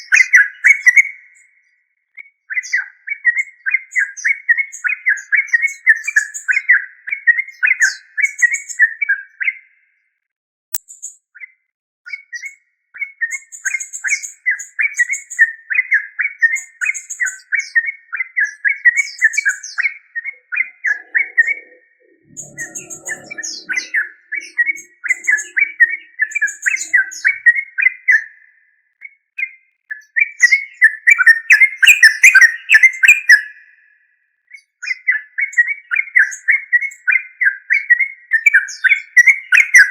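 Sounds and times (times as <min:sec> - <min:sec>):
bird singing chattering notes: 0:19.0 - 0:27.7.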